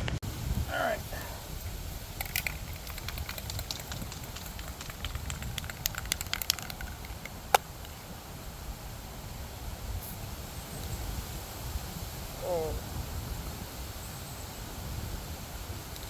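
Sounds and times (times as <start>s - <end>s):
wind buffeting microphone: 0.0s - 16.0s
light clicks and ticks: 2.2s - 8.0s.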